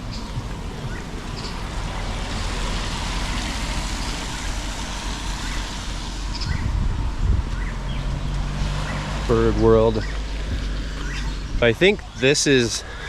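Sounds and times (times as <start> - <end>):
bird chirps: 0.0 - 2.3, 9.9 - 12.4
vehicle engine running: 0.0 - 11.8.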